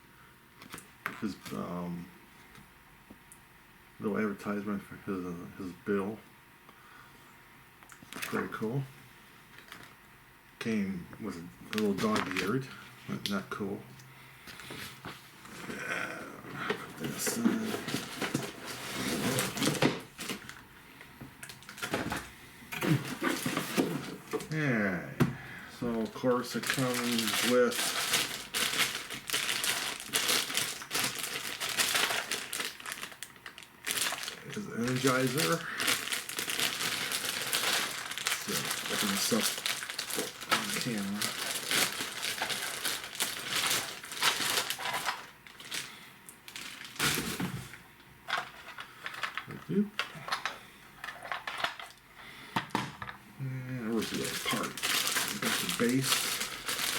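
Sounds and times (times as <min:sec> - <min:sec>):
packaging clicks and rustles: 0:09.5 - 0:10.0, 0:11.6 - 0:12.6, 0:16.7 - 0:20.6, 0:21.4 - 0:24.6, 0:26.0 - 0:45.9, 0:46.5 - 0:47.5, 0:48.3 - 0:52.0, 0:54.0 - 0:56.9.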